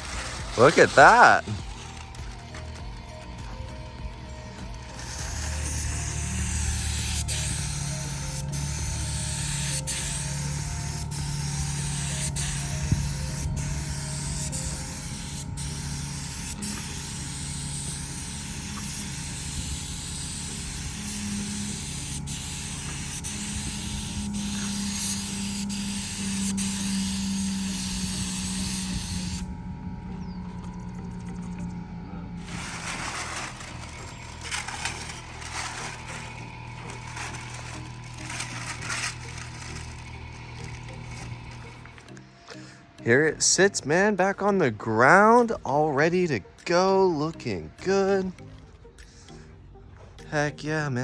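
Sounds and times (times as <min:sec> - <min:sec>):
spray paint gun hissing: 0:04.9 - 0:29.5, 0:32.4 - 0:41.9.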